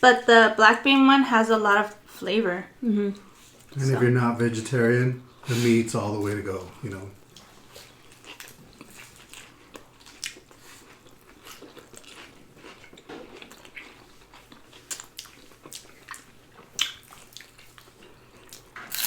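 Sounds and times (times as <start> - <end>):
people chewing food: 3.0 - 4.0, 5.3 - 19.0
light food crunches: 8.1 - 19.0.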